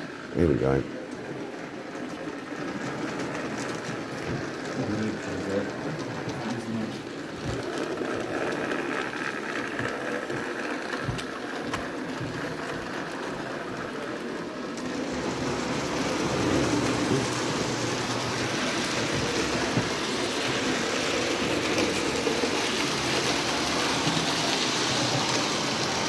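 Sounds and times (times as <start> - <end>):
model train whirring and clattering: 0.0 - 26.0.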